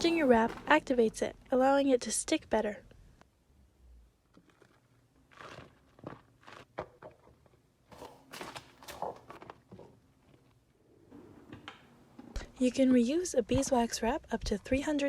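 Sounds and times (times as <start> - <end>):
wax wrap crinkling: 4.2 - 10.6.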